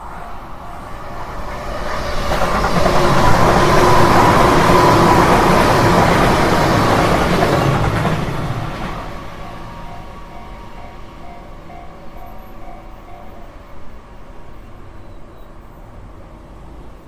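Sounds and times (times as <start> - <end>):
steady tone: 0.0 - 6.2.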